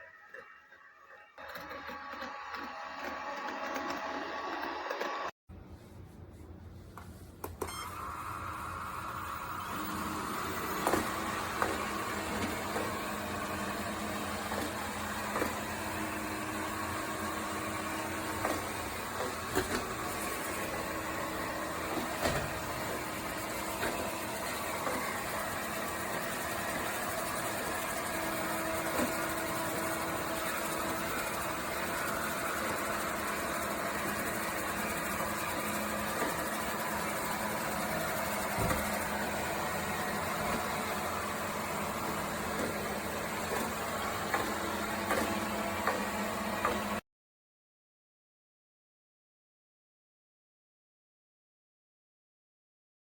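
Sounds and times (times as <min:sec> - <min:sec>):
robot vacuum motor whir: 0:00.0 - 0:05.3, 0:07.6 - 0:47.0.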